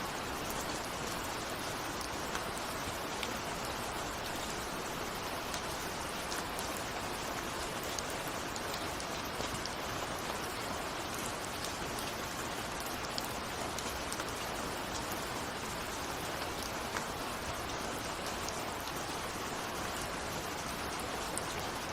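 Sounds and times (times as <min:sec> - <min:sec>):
steady rain hiss: 0:00.0 - 0:21.9.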